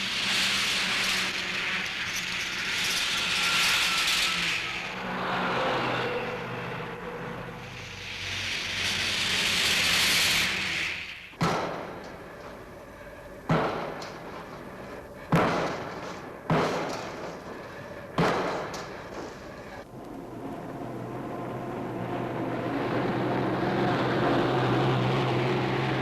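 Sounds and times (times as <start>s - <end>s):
loud construction impacts: 0.0s - 19.9s
machine engine running: 0.0s - 26.0s.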